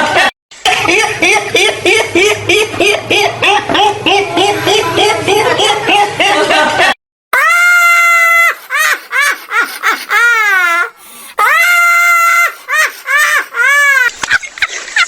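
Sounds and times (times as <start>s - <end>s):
high-pitched crying: 7.4s - 14.1s.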